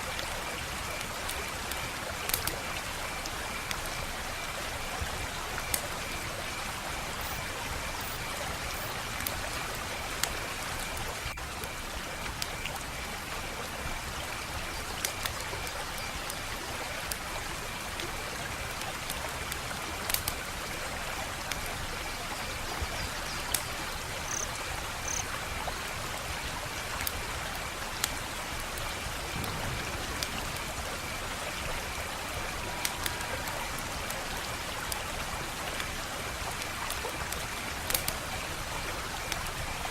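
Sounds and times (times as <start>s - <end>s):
wood fire crackling: 0.1s - 13.5s, 18.5s - 21.9s, 27.0s - 39.9s.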